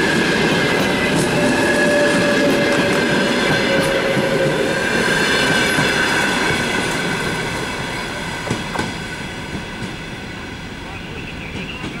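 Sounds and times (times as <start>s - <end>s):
train wheels clacking over rail joints: 0.0s - 7.4s, 8.4s - 10.1s.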